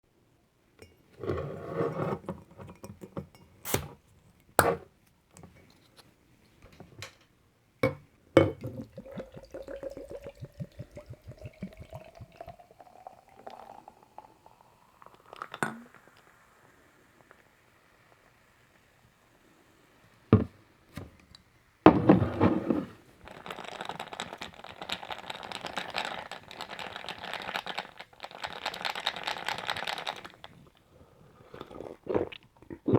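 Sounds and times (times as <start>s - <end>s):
sparkling drink pouring into glass: 8.5s - 18.4s.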